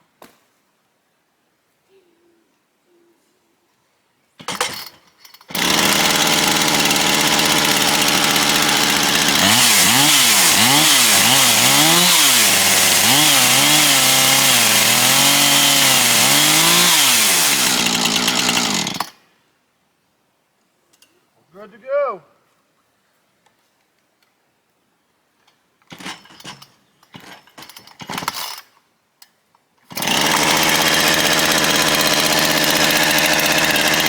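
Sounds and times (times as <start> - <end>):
chainsaw revving: 5.5 - 19.2, 29.9 - 34.0.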